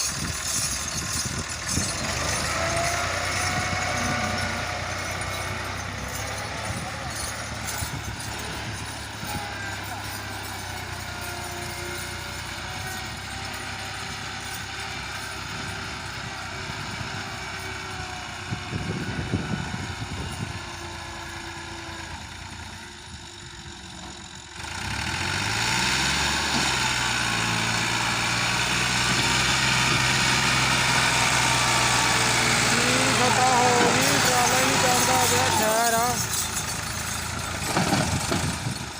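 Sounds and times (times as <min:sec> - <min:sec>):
rattling: 0:00.0 - 0:15.9, 0:28.7 - 0:38.9
tractor diesel engine revving: 0:00.0 - 0:38.9.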